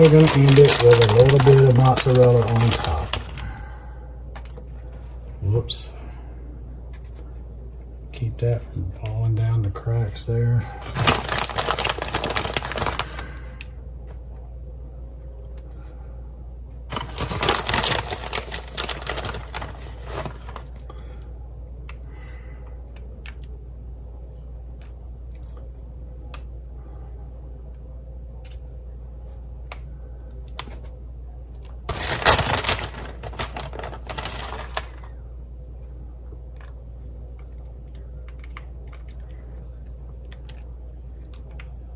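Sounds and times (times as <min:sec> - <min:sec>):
crinkling and rustling: 0:00.0 - 0:03.6, 0:10.8 - 0:13.4, 0:16.9 - 0:20.8, 0:31.5 - 0:35.2.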